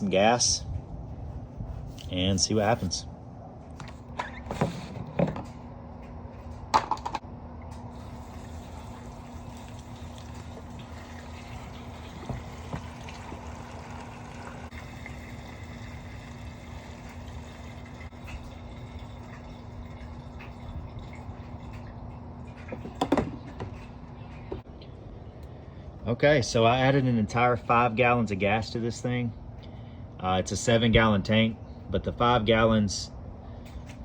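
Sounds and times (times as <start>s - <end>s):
gas can knocks and clicks: 6.7s - 7.2s, 22.7s - 23.9s
fuel pouring into plastic tank: 7.9s - 23.9s.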